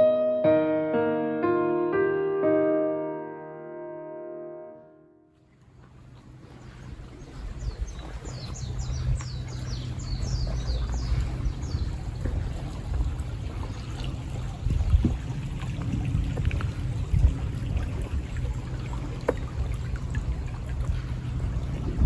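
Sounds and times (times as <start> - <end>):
shallow stream flowing: 5.4 - 22.0.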